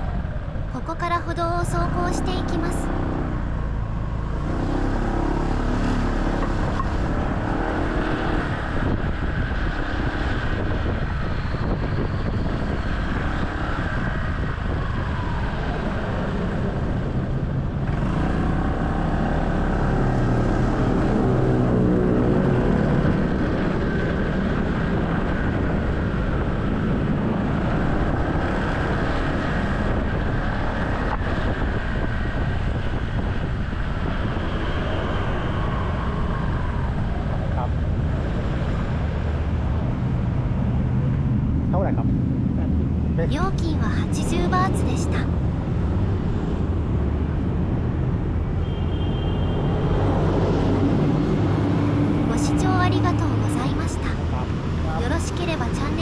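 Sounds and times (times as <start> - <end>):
road and wind noise: 0.0 - 56.0.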